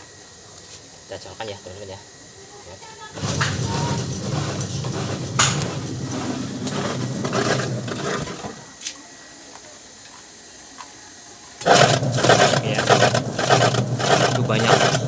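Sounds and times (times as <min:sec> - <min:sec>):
washing machine motor humming: 0:02.8 - 0:08.8, 0:11.6 - 0:15.0.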